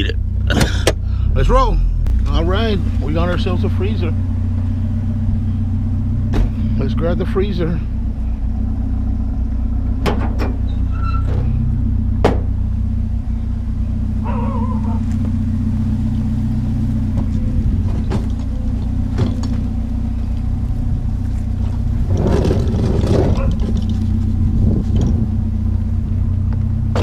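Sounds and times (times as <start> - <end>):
vehicle engine idling: 0.0 - 27.0
sharp knocks and bangs: 10.0 - 10.6, 12.2 - 12.6.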